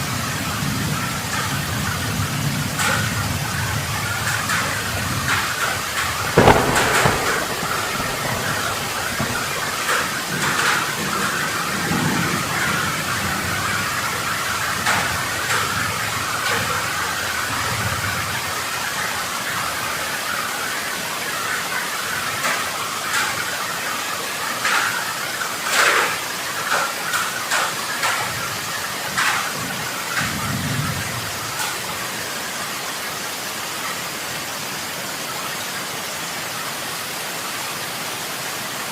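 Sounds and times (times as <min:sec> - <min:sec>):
heavy rain pouring: 0:00.0 - 0:38.9
low rumbling: 0:06.2 - 0:10.0.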